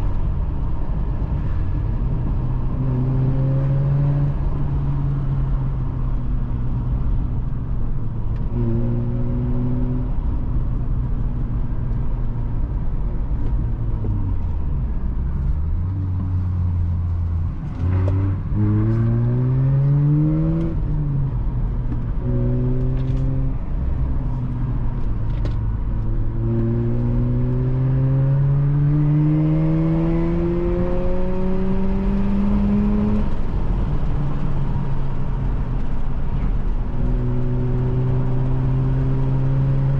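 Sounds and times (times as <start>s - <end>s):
rotary car engine revving: 14.0s - 34.5s.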